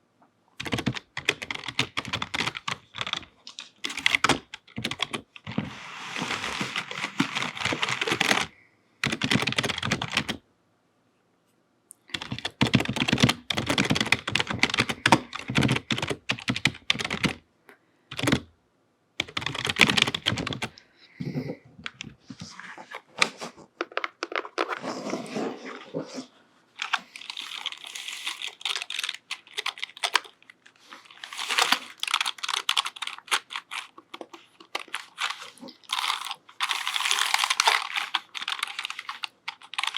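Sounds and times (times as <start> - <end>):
typing on computer keyboard: 0.6 - 5.5, 6.7 - 10.4, 12.1 - 17.4, 18.1 - 18.5, 19.2 - 20.8, 26.8 - 30.4, 31.3 - 39.9.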